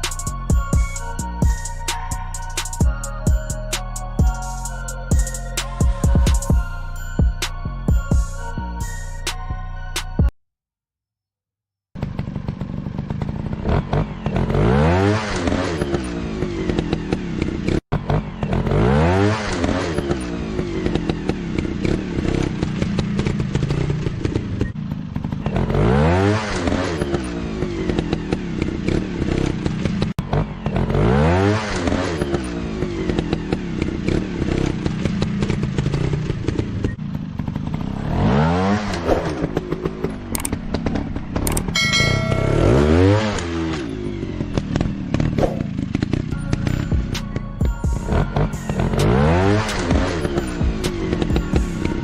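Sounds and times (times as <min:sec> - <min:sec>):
dirt bike engine revving: 0:12.0 - 0:52.0.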